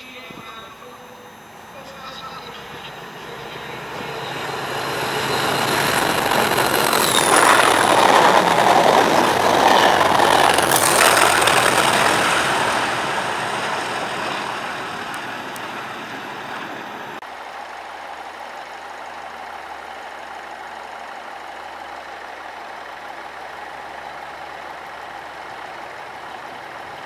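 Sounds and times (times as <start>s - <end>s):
high whine dropping in pitch: 0.0s - 17.1s
train rushing past: 0.0s - 17.2s.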